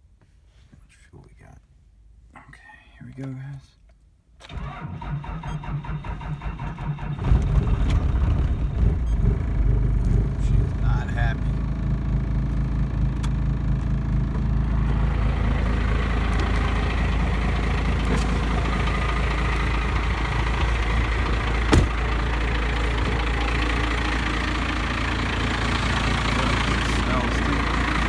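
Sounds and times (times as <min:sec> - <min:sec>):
diesel engine idling: 0:06.9 - 0:28.0.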